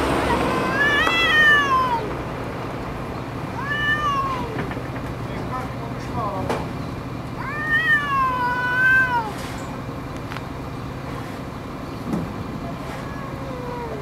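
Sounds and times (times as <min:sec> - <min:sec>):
cats meowing: 0:00.1 - 0:02.2, 0:03.2 - 0:05.0, 0:07.3 - 0:09.8, 0:12.6 - 0:14.0.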